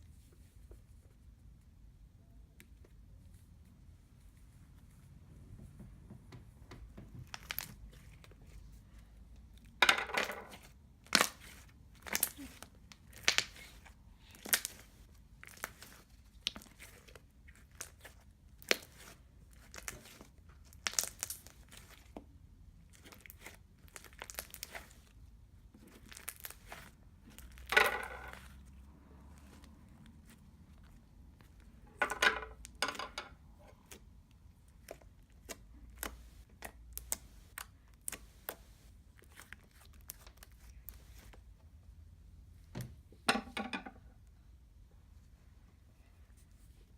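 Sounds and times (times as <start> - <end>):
slime wet pops and crackles: 11.0 - 22.1, 22.8 - 25.0, 33.8 - 40.9.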